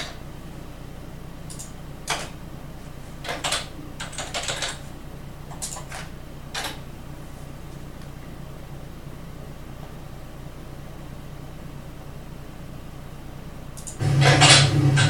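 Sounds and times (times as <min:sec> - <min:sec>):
steady low hum: 0:00.0 - 0:15.0
computer keyboard typing: 0:01.5 - 0:02.4, 0:03.2 - 0:04.8, 0:05.5 - 0:06.8.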